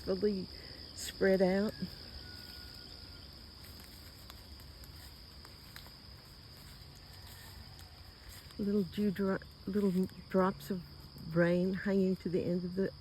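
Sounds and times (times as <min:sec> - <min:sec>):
insect chirring: 0:00.0 - 0:13.0.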